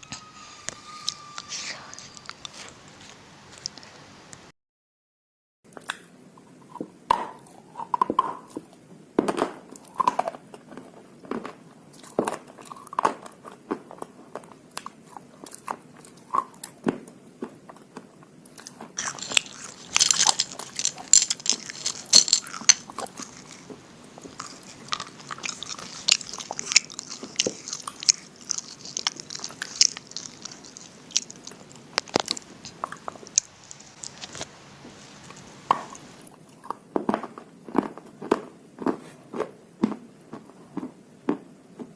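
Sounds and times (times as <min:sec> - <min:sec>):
person crunching slate pencils: 0:00.0 - 0:04.0, 0:18.6 - 0:36.3.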